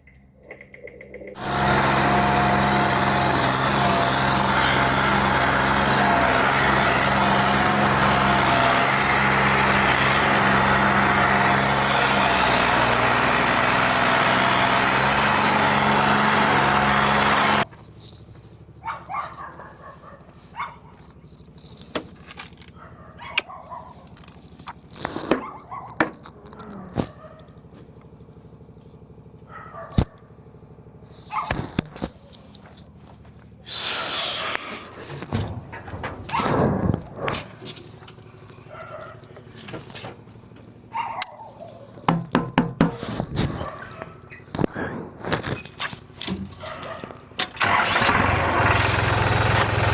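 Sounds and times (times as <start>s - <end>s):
tractor diesel engine running: 0.0s - 49.9s
dog barking: 18.8s - 21.0s, 22.7s - 24.1s, 25.4s - 26.0s, 27.1s - 27.5s, 29.5s - 30.3s, 31.3s - 31.6s, 38.7s - 39.3s, 40.9s - 42.1s, 43.6s - 44.2s, 46.6s - 47.2s.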